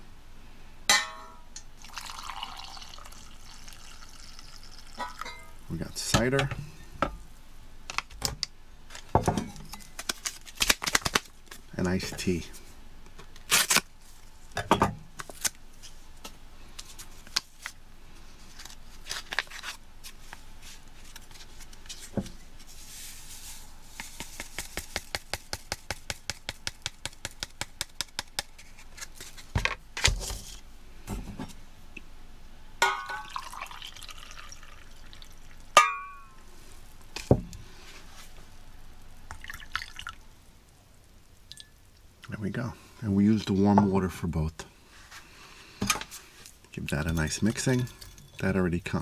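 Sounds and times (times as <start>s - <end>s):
water pouring: 1.8s - 5.7s, 33.0s - 35.6s, 39.3s - 40.2s
packets and containers handled: 7.9s - 31.6s, 45.0s - 48.6s.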